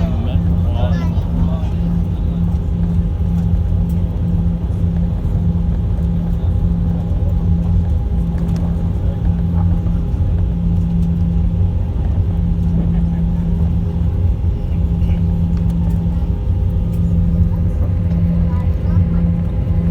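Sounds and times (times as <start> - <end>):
airliner cabin drone: 0.0 - 19.9.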